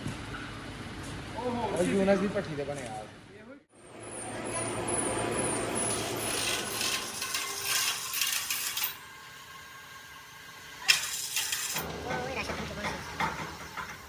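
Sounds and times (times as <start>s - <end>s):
hand tools scraping metal: 5.4s - 9.1s, 10.8s - 14.0s.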